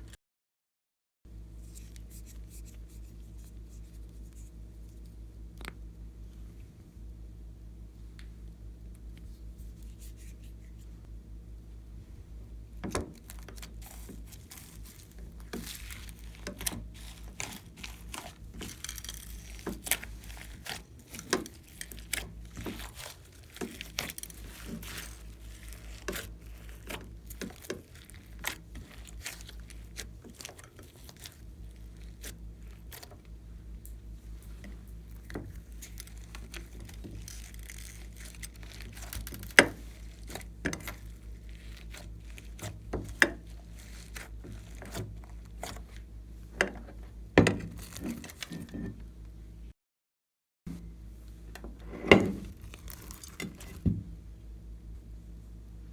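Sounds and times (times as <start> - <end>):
faint low hum: 1.3 - 49.7
slime kneaded by hand: 12.8 - 46.1, 52.2 - 54.0.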